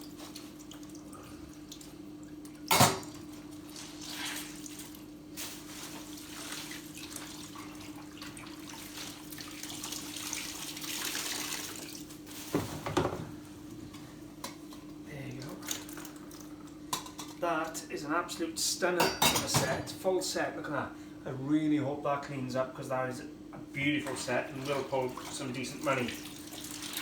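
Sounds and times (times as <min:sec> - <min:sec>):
water trickling and dripping: 0:00.0 - 0:12.2, 0:24.3 - 0:27.0
wet items handled: 0:03.5 - 0:12.9.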